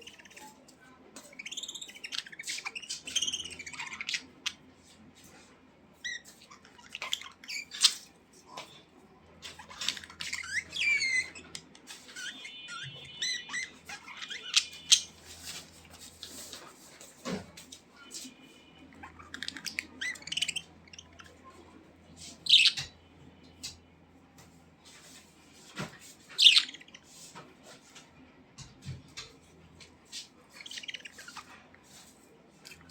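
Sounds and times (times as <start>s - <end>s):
budgerigars chirping and warbling: 0.0s - 0.6s, 1.2s - 4.7s, 6.0s - 8.1s, 9.4s - 15.8s, 18.9s - 21.5s, 22.2s - 23.0s, 26.4s - 27.1s, 30.2s - 32.9s.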